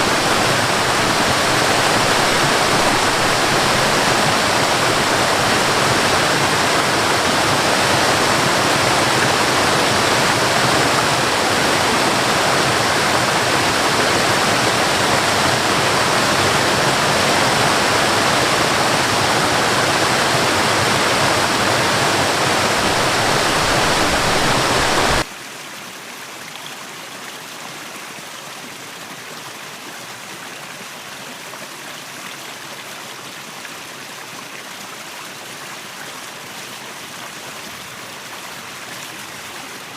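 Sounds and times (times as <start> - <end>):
running water: 0.0 - 25.3
waterfall rushing: 0.0 - 25.3.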